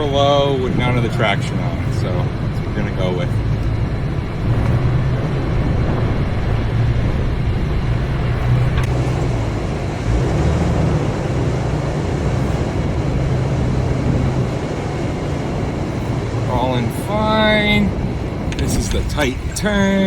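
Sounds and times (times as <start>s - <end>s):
truck engine running low: 0.0s - 20.0s.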